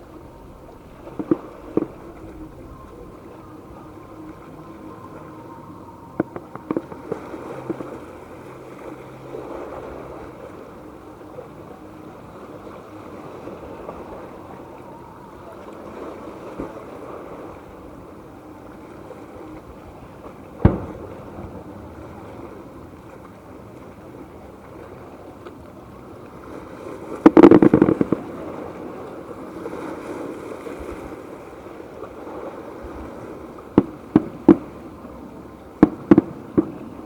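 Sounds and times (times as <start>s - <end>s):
crowd noise: 0.0s - 37.0s
fireworks bursting: 20.6s - 21.5s, 27.2s - 28.2s, 33.8s - 34.8s, 35.8s - 37.0s.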